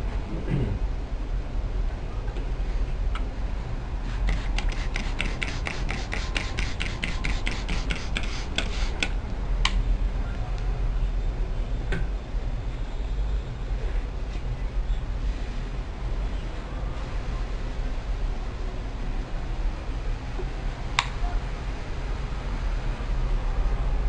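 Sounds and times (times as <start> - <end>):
low steady hum: 0.0 - 24.0
iron crackling on wet cloth: 4.2 - 9.0.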